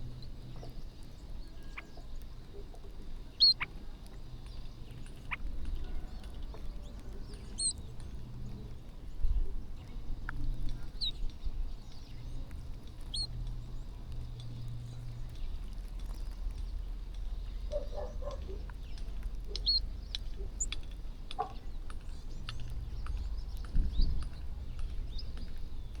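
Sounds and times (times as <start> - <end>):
birds chirping: 0.0 - 26.0
light pecking clicks: 0.2 - 26.0.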